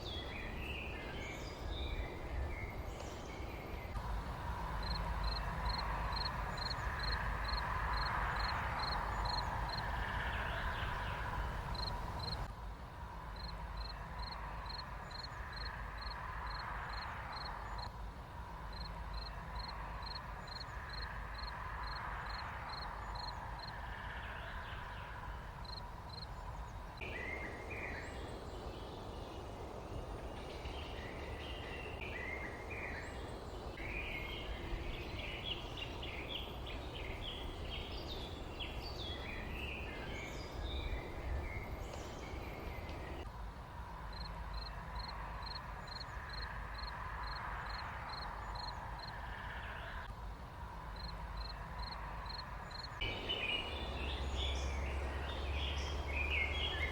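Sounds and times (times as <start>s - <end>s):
small birds chirping: 0.0s - 12.5s, 18.7s - 43.3s, 51.0s - 56.9s
low background hiss: 0.0s - 56.9s.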